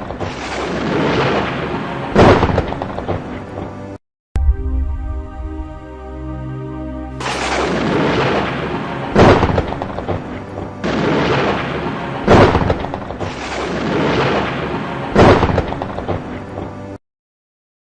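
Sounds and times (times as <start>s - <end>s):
sharp lightning cracks: 0.0s - 2.7s, 7.2s - 10.1s, 10.8s - 15.9s
rolling thunder rumble: 0.0s - 3.2s, 4.4s - 6.0s, 7.2s - 16.3s
soft background music: 0.1s - 17.0s.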